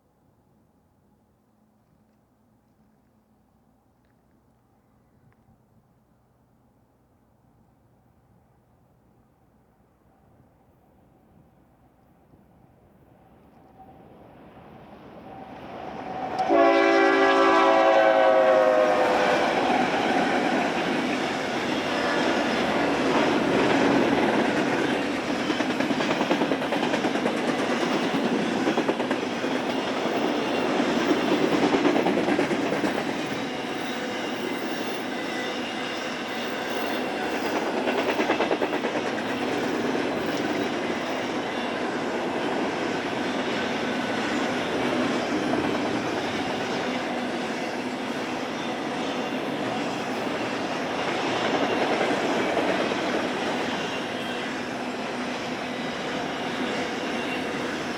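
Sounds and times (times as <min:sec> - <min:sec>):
freight train rumbling by: 0:13.0 - 0:57.9
train horn: 0:16.0 - 0:20.7, 0:53.6 - 0:57.9
wheels clacking on rails: 0:18.5 - 0:57.9.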